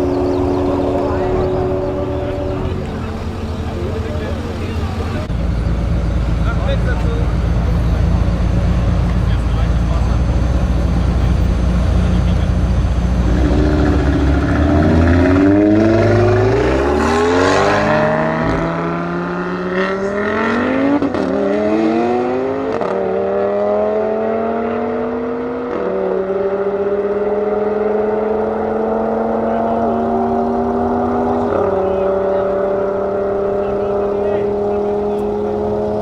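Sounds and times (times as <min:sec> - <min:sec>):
deep low rumble: 0:00.0 - 0:19.3
sports car accelerating with upshifts: 0:00.0 - 0:36.0.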